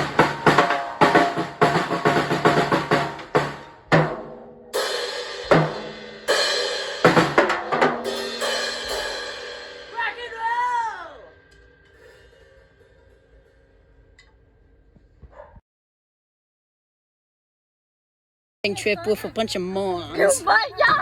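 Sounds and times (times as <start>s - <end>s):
snare and bass drum hits: 0.0s - 4.5s, 5.1s - 6.3s, 7.0s - 9.2s
cymbals ringing: 0.0s - 14.8s.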